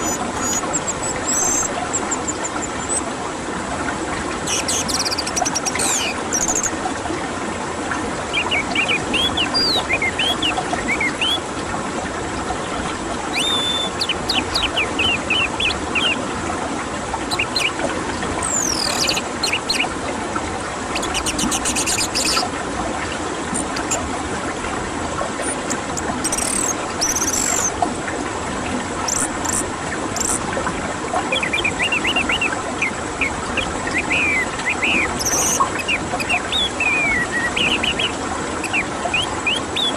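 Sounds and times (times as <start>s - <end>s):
songbirds chirping: 0.0s - 3.1s, 4.5s - 6.8s, 8.3s - 11.4s, 13.4s - 16.2s, 18.4s - 20.0s, 25.4s - 27.8s, 29.1s - 30.5s, 31.3s - 39.9s
dense rushing background noise: 0.0s - 39.9s.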